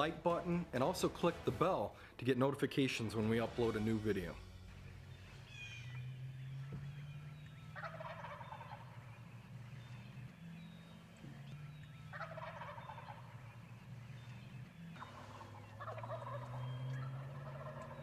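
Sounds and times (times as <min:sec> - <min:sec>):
steady low hum: 0:03.6 - 0:18.0
turkeys gobbling: 0:04.8 - 0:18.0.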